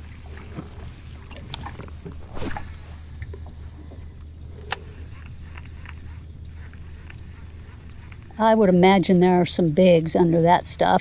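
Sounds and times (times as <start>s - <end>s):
insects chirping: 0.0s - 11.0s
small clicks and splashes on water: 0.2s - 6.1s.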